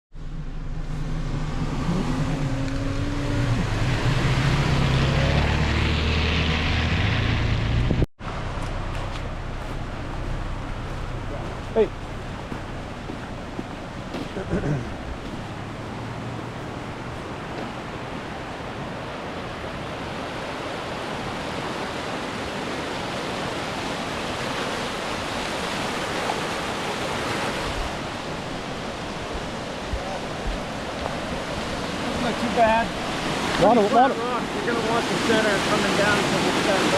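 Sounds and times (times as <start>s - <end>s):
engine running: 0.2s - 18.6s
rapids rushing over rocks: 8.2s - 36.9s.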